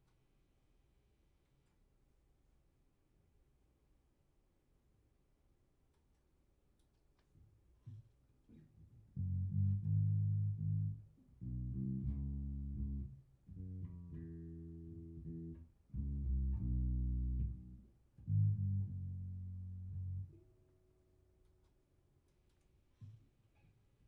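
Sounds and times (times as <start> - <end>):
electric bass plucked notes: 9.1 - 20.4.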